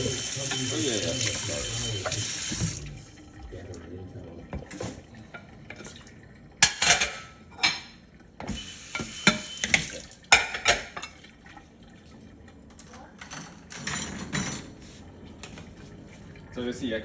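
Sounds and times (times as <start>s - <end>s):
dishes and cutlery clattering: 6.6s - 8.0s, 9.3s - 11.2s, 12.8s - 14.8s.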